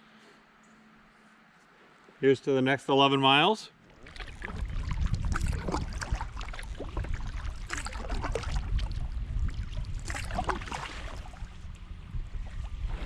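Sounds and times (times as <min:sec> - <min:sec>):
water dripping from paddle: 0:03.8 - 0:10.9
paddle splashing in water: 0:03.8 - 0:11.8
steady low rumble: 0:04.2 - 0:13.0.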